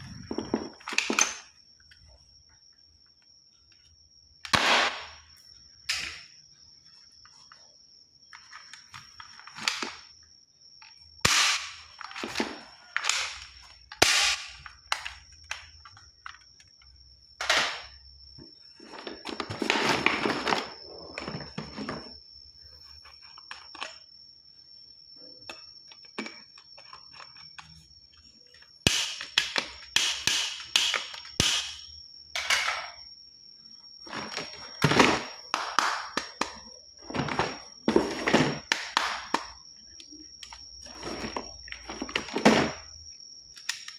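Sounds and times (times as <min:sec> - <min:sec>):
plastic toy gun clicks and snaps: 0:28.9 - 0:32.8, 0:43.5 - 0:43.9.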